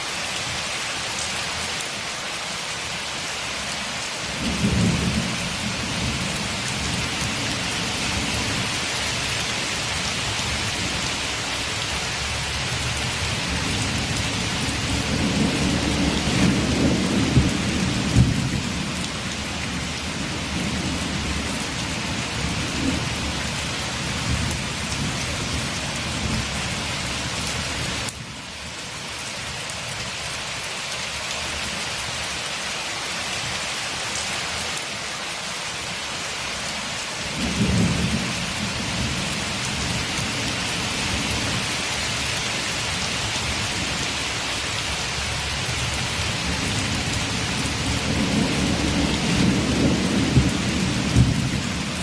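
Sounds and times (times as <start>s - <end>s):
rain on a window: 0.0s - 52.0s
thunder rumbling: 4.4s - 8.8s, 12.8s - 26.6s, 37.3s - 41.8s, 45.3s - 52.0s.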